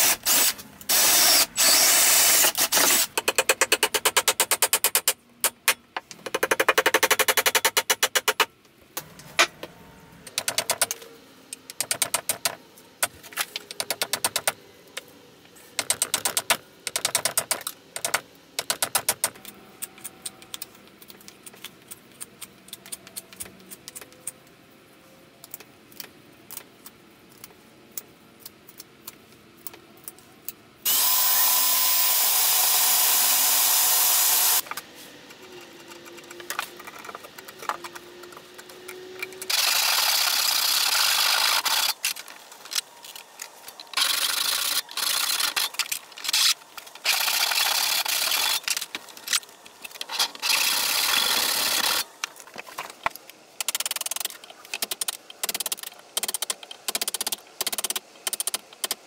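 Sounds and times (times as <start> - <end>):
hand tools clicking on wood: 53.6 - 59.0.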